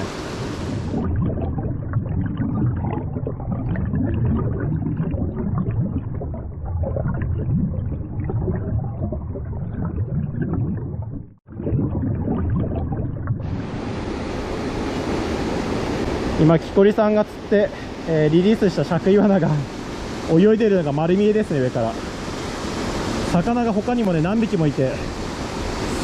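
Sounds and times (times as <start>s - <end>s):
stream water rushing and splashing: 0.0s - 1.2s, 13.4s - 26.0s.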